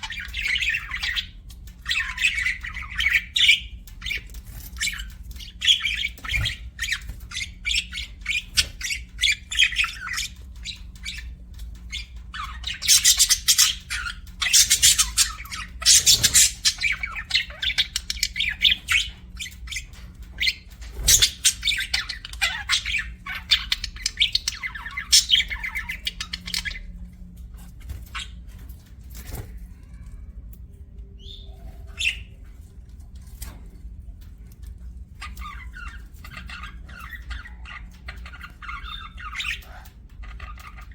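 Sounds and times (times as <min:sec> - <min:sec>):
budgerigars chirping: 0:00.0 - 0:26.8, 0:35.2 - 0:40.9.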